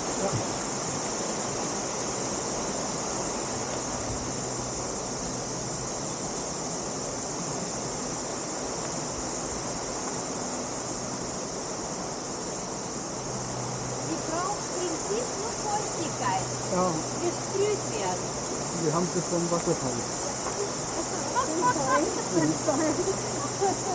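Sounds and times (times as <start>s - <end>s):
continuous high hiss: 0.0s - 23.9s
waterfall rushing: 13.2s - 23.9s.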